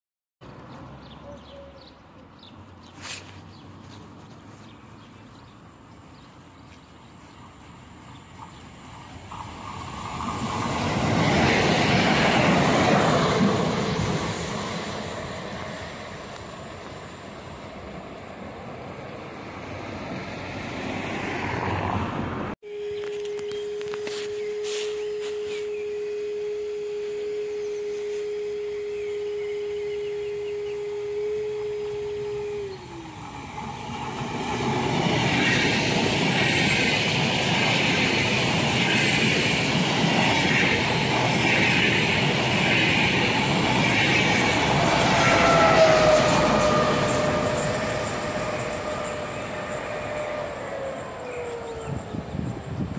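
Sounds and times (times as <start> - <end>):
electric train running on rails: 4.0 - 52.9
steady pure tone: 22.6 - 37.0.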